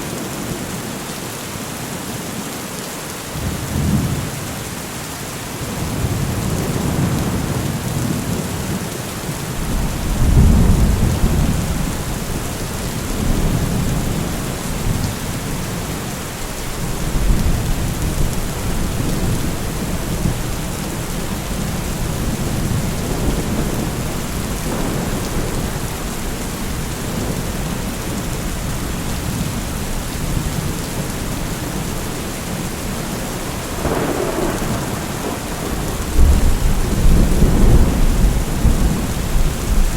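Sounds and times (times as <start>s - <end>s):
steady rain hissing: 0.0s - 39.9s
thunder rumbles: 9.5s - 39.9s.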